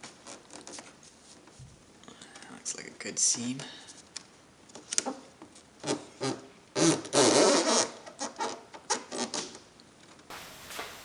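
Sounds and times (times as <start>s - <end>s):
duct tape ripping: 10.3s - 11.0s.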